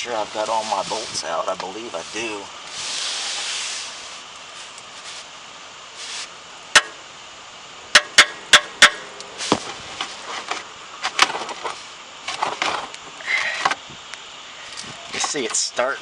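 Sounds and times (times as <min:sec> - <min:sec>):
sharp metal strikes: 0:06.8 - 0:07.0, 0:07.9 - 0:09.2.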